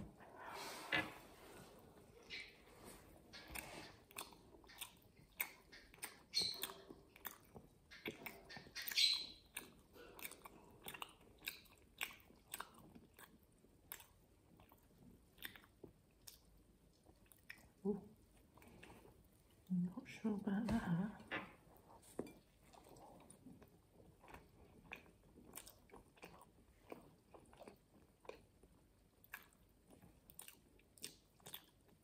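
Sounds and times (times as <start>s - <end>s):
chewing with wet mouth clicks: 2.1s - 2.6s, 3.3s - 19.7s, 22.1s - 32.0s.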